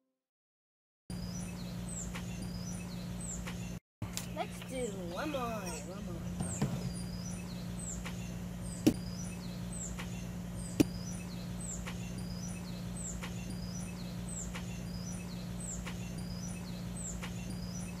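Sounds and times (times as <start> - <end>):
air conditioner hum: 1.1 - 18.0
bird calling: 1.2 - 18.0
sharp knock: 10.8 - 11.0.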